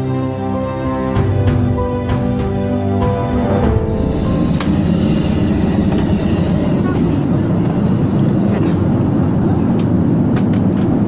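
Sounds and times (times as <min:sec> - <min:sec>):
jet engine cabin rumble: 0:03.6 - 0:11.0.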